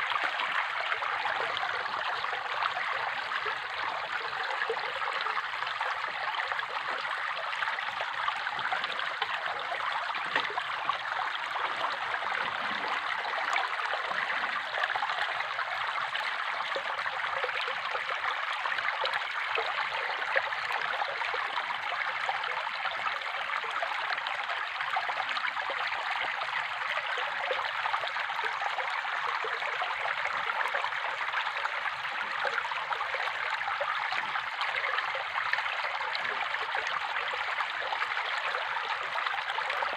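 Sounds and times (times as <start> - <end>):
running water flowing: 0.0 - 23.0.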